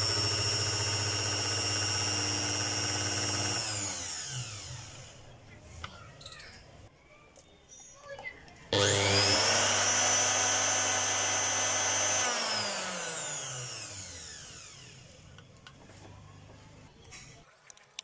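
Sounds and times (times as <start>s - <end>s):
electric motor whining: 0.0s - 5.0s, 8.8s - 15.2s.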